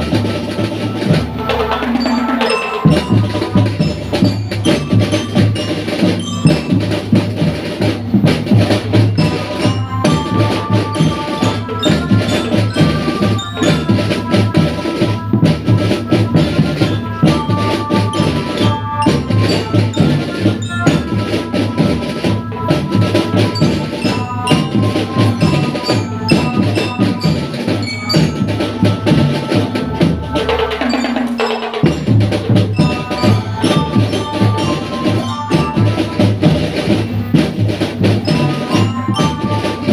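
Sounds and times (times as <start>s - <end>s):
bell-like melody: 0.0s - 39.9s
drums beating steady rhythm: 0.0s - 39.9s.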